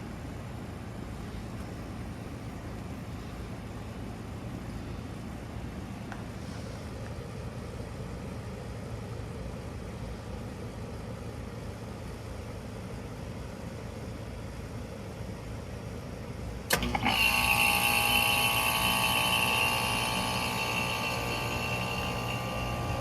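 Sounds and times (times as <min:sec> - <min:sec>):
compressor humming: 0:16.6 - 0:23.0.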